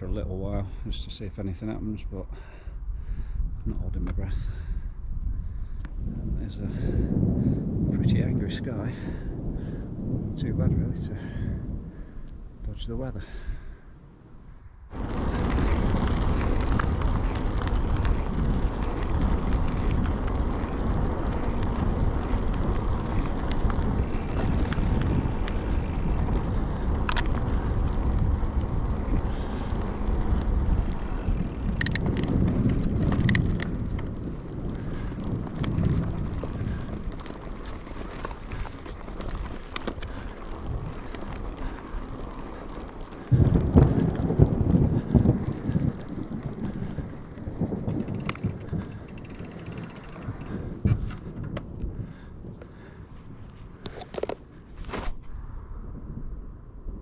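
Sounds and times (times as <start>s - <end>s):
bike tyre rumble: 0.0s - 57.0s
wind buffeting microphone: 0.0s - 57.0s
bike clicks and rattles: 15.0s - 55.3s.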